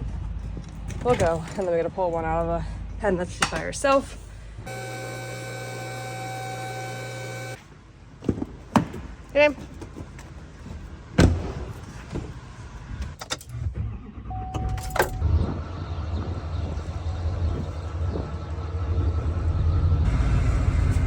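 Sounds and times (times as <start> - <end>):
truck engine low rumble: 11.8 - 21.0.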